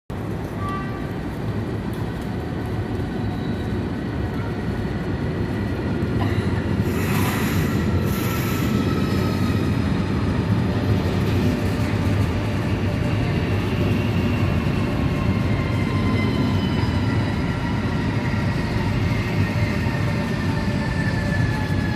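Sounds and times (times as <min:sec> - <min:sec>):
train wheels rumbling on rail: 0:00.1 - 0:21.9.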